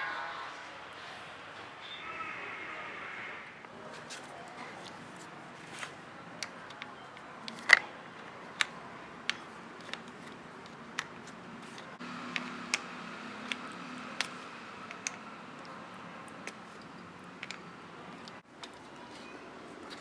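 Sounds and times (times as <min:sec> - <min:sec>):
hand tools clicking and tapping: 0:06.4 - 0:20.0.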